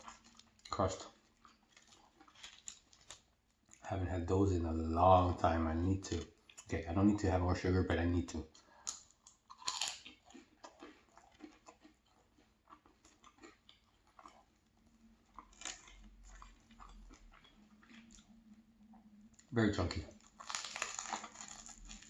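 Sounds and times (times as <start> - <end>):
crisp pastry bite: 0.0 - 3.8, 8.6 - 18.3, 19.8 - 22.0
chewing with small crunches: 0.0 - 3.9, 5.8 - 7.2, 8.0 - 22.0.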